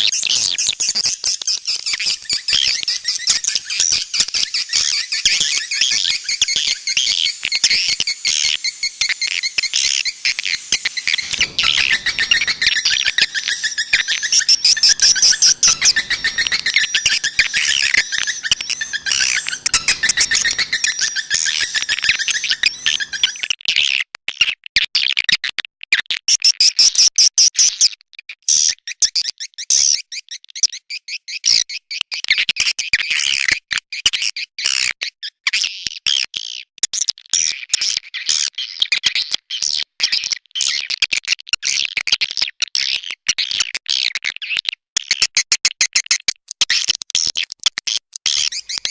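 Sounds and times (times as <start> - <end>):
swiftlets twittering: 1.7 - 23.4.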